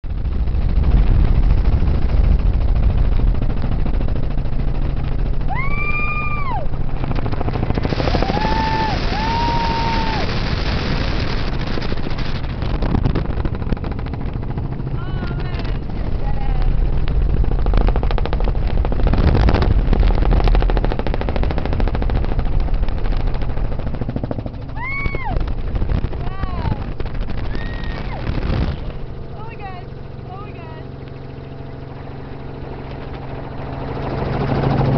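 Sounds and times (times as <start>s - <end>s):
wind noise: 0.0s - 31.0s
helicopter rotor and engine drone: 0.0s - 34.9s
turbine rumble: 0.0s - 34.9s
person crying whoo: 5.5s - 6.7s, 8.2s - 10.2s, 24.8s - 25.4s.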